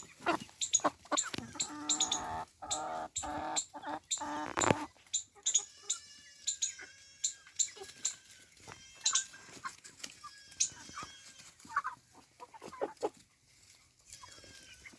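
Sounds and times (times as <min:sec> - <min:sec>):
high-pitched peeping calls: 0:00.0 - 0:08.3, 0:08.9 - 0:09.4
chickens clucking: 0:00.0 - 0:14.9.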